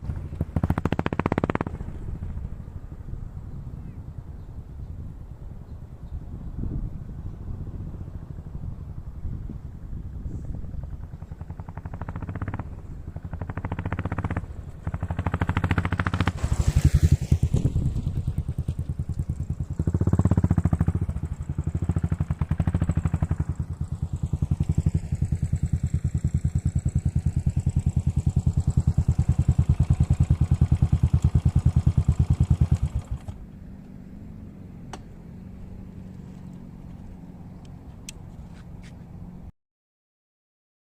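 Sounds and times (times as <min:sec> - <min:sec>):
motorcycle engine revving: 0:00.0 - 0:02.6, 0:10.0 - 0:38.1.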